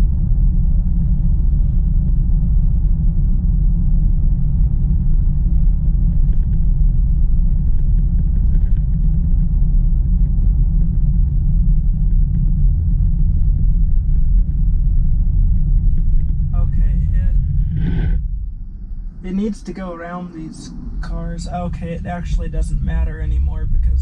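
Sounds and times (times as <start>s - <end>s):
road and tyre noise in car: 0.0s - 24.0s.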